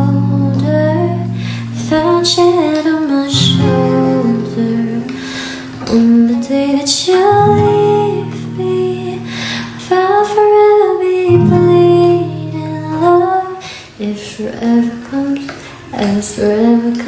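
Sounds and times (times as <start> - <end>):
plucked acoustic guitar: 0.0 - 13.6
woman singing: 0.0 - 17.0.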